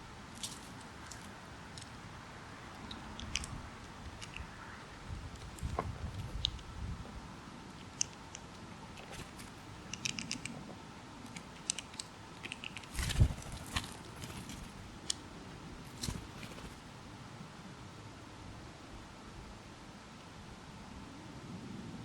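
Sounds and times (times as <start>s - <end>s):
songbirds calling: 0.0s - 17.1s.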